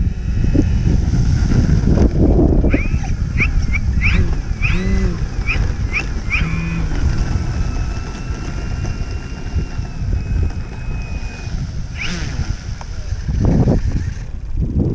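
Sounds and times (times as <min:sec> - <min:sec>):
model aircraft motor whine: 0:00.0 - 0:14.9
wind buffeting microphone: 0:00.0 - 0:14.9.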